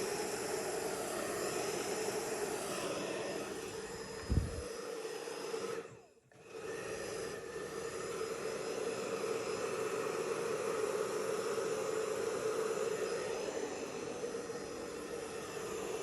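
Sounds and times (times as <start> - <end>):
hairdryer fan hum and air rush: 0.0 - 16.0.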